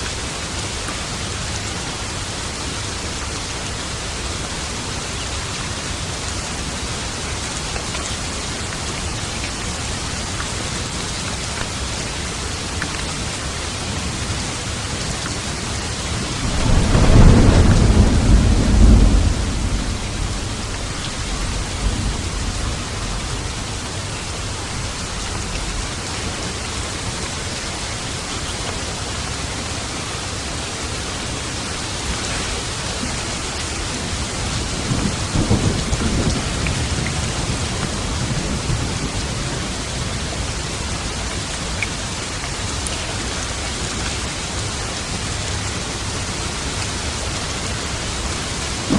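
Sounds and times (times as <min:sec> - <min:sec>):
heavy rain: 0:00.0 - 0:48.9
thunder clap and rumble: 0:13.9 - 0:26.4, 0:31.6 - 0:42.3, 0:48.0 - 0:48.9.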